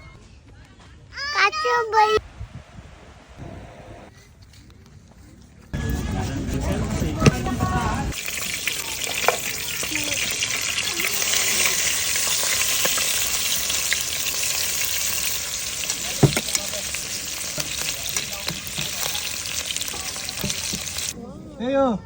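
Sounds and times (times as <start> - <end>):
food sizzling in a pan: 8.1 - 21.2.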